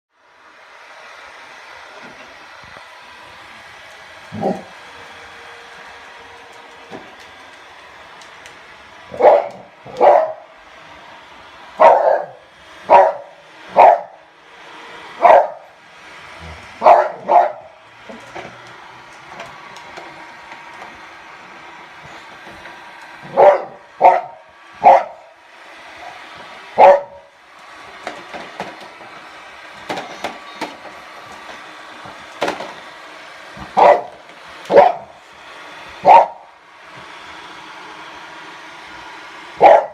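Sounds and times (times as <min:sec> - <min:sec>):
robot vacuum motor hum: 0:00.8 - 0:39.8
dog barking: 0:09.1 - 0:10.4, 0:11.8 - 0:14.2, 0:15.2 - 0:15.7, 0:16.8 - 0:17.7, 0:23.2 - 0:25.2, 0:26.8 - 0:27.3, 0:33.8 - 0:35.1, 0:36.0 - 0:36.5, 0:39.6 - 0:39.9.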